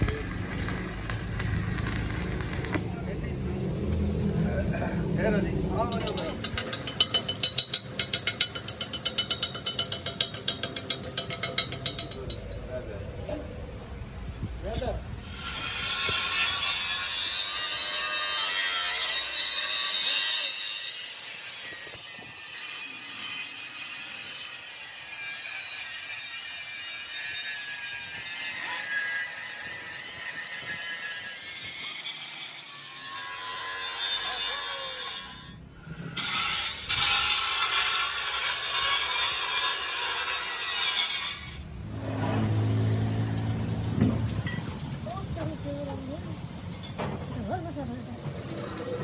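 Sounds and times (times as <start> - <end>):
harsh grinding on metal: 0.0 - 2.8, 5.7 - 12.6, 15.2 - 44.6.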